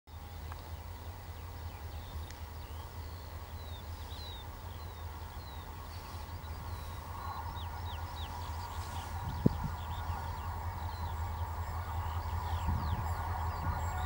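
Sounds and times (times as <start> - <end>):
birds chirping: 0.1 - 14.0
distant diesel locomotive rumble: 0.1 - 14.0.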